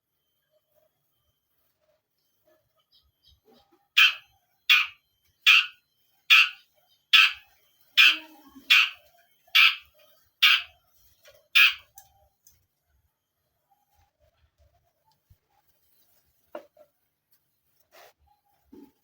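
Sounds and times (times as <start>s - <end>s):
bird harsh rasping calls: 4.0s - 7.4s, 8.0s - 10.8s, 11.6s - 11.9s.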